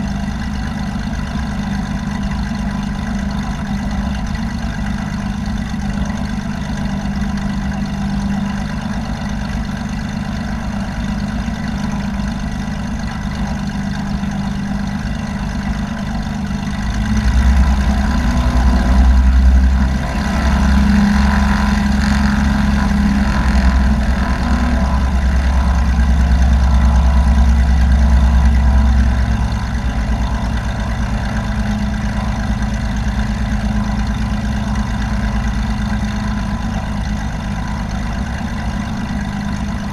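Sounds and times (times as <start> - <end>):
airplane engine drone: 0.0 - 39.9
loud low rumble: 10.6 - 39.9.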